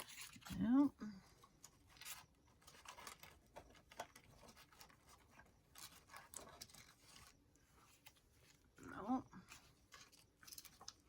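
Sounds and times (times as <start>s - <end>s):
paper rustling: 1.6s - 8.7s, 9.4s - 11.0s.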